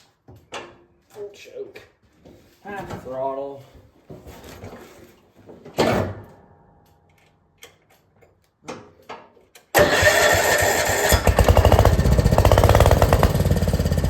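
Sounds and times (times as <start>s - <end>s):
tractor engine starting and running: 9.8s - 14.0s.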